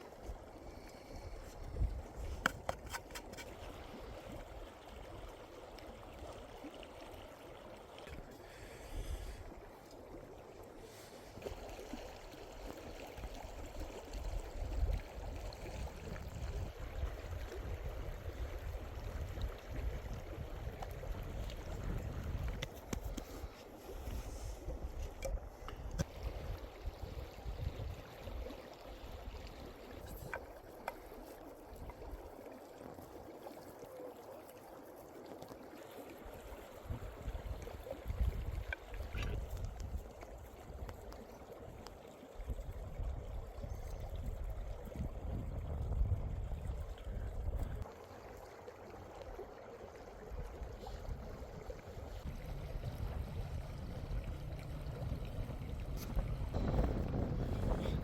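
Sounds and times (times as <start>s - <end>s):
running water rushing: 0.0s - 58.0s
wind rumbling on microphone: 0.3s - 5.3s, 13.2s - 30.5s, 36.3s - 47.9s, 50.2s - 58.0s.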